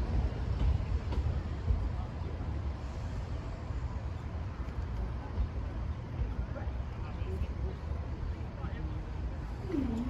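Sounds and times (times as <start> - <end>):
train rumbling over crossing: 0.0 - 7.0.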